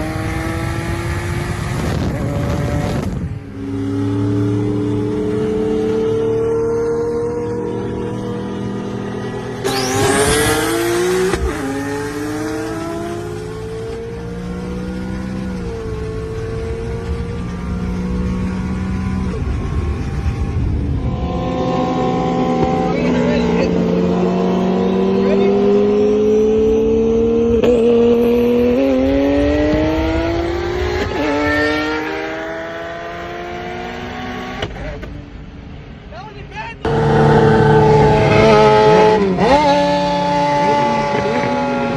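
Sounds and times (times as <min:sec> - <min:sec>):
car engine accelerating through gears: 0:00.0 - 0:35.1, 0:36.8 - 0:41.9
engine rushing surge: 0:36.8 - 0:41.9.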